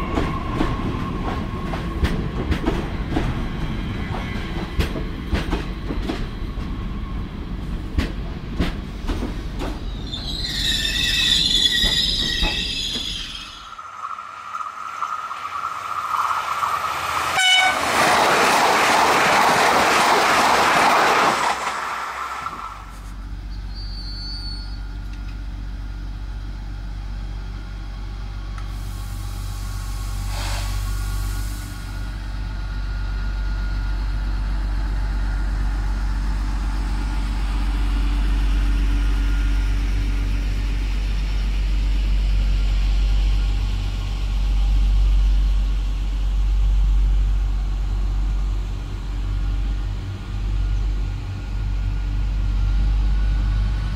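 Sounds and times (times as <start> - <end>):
train rushing past: 0.0 - 23.2
train rumbling along platform: 0.0 - 53.9
air hiss: 28.6 - 32.0.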